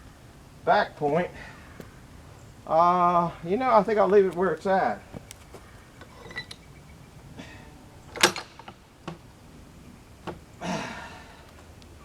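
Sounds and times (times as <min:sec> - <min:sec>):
clicks and knocks: 0:06.0 - 0:06.7, 0:08.1 - 0:09.3.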